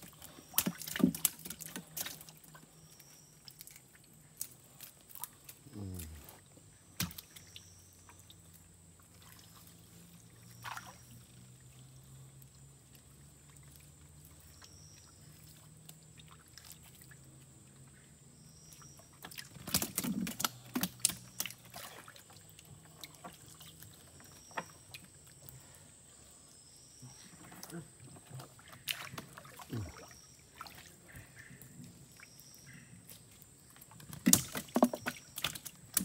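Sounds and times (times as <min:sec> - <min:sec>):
splashing and knocks: 0:00.0 - 0:02.4, 0:07.0 - 0:07.5, 0:19.2 - 0:22.2, 0:28.2 - 0:30.9, 0:34.0 - 0:36.0
water dripping off net: 0:19.2 - 0:23.2.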